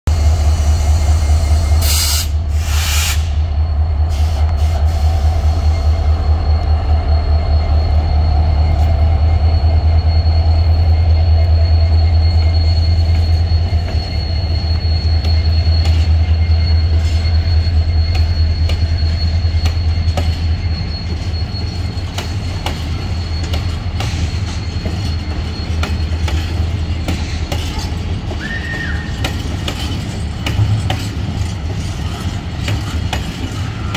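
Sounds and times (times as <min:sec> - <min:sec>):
diesel locomotive engine drone: 0:00.0 - 0:33.9
wagon wheels clicking and squealing: 0:10.0 - 0:33.9.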